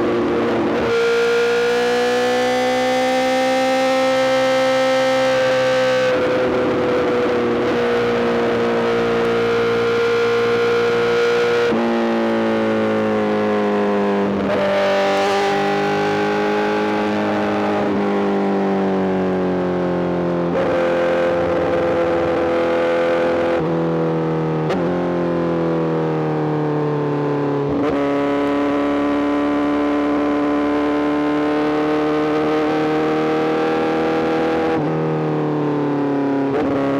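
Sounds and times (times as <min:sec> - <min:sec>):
motorcycle engine at high revs: 0:00.0 - 0:18.4.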